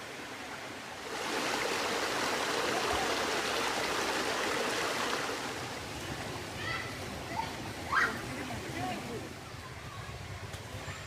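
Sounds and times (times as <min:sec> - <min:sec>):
waterfall rushing: 0:00.0 - 0:09.3.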